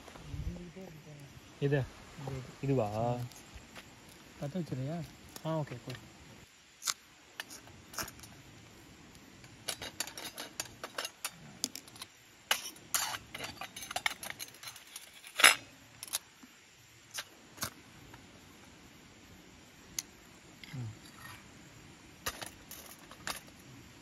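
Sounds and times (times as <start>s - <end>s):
metal utensils clinking on cookware: 9.7s - 15.6s.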